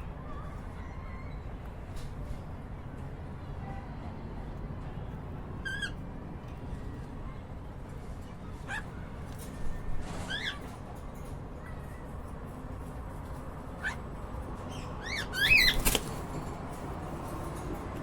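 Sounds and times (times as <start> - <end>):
low background hum: 0.0 - 18.0
cockatiels chirping: 14.7 - 16.1.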